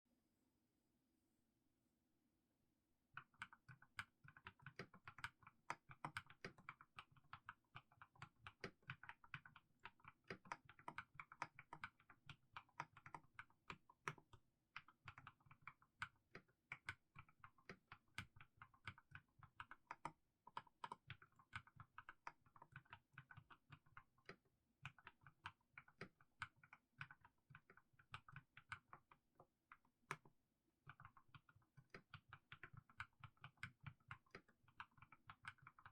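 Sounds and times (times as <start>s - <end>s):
mechanical keyboard typing: 30.9s - 35.9s.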